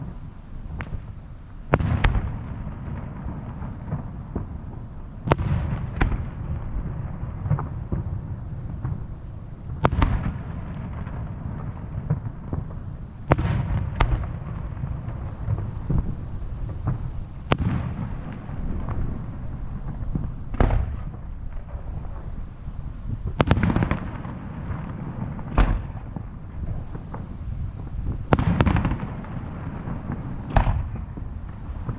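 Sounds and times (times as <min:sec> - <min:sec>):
fireworks bursting with sharp bangs: 0:00.0 - 0:31.9
low rumble of booms and echoes: 0:00.0 - 0:31.9.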